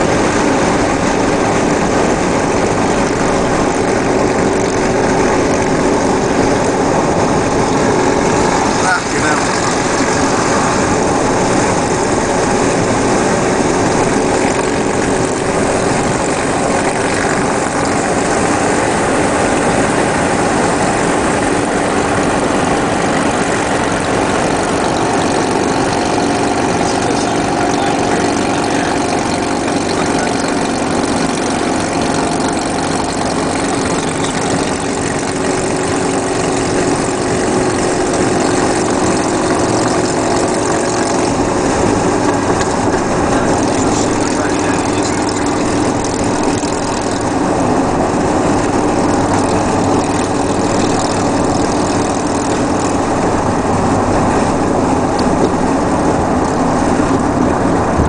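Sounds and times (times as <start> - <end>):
motorcycle engine running: 0.0 - 58.0
wind noise rushing: 53.0 - 58.0.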